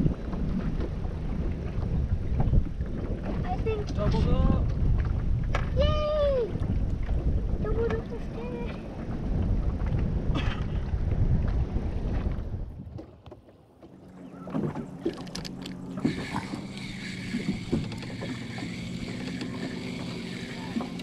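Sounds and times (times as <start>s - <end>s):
wind buffeting microphone: 0.0s - 13.4s, 14.2s - 21.0s
steady hum: 15.5s - 21.0s.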